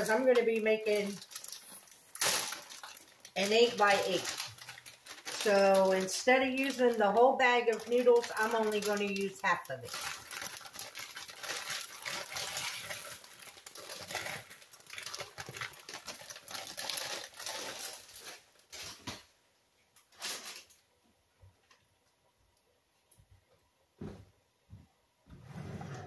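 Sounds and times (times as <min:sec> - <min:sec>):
plastic bag rustling: 0:00.0 - 0:19.4, 0:20.0 - 0:20.9.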